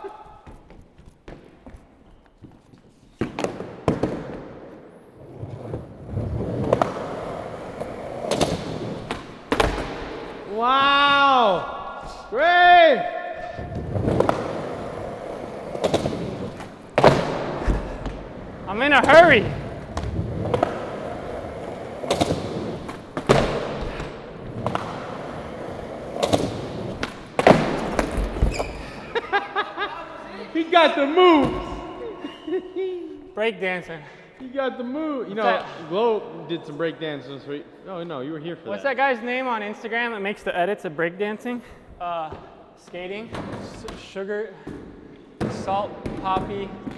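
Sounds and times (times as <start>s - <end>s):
skateboard wheels rolling: 3.4s - 10.5s, 13.6s - 29.3s
skateboard clacks: 6.5s - 10.4s, 13.7s - 28.7s.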